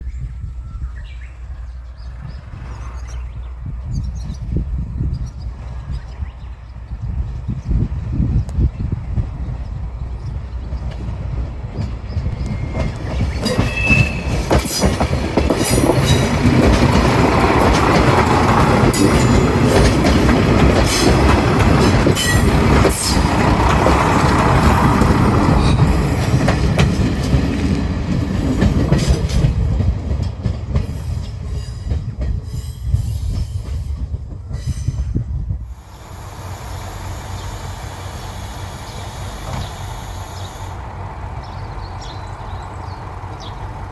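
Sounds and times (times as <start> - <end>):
diesel train running past: 0.4 - 43.9
wheels clicking over rail joints: 9.7 - 34.9
high wheel squeal: 12.3 - 20.1, 20.8 - 26.3, 34.6 - 42.4.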